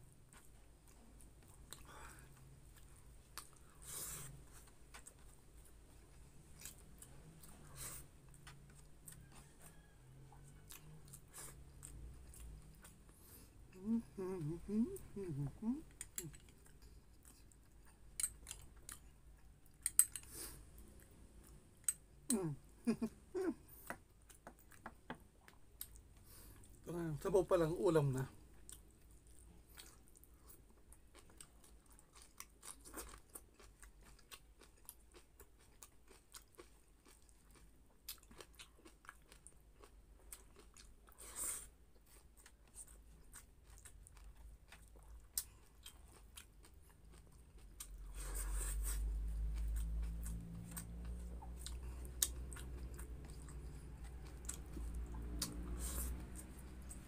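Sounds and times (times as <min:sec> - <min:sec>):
low steady hum: 0:00.0 - 0:57.0
wet chewing and crunches: 0:28.6 - 0:57.0.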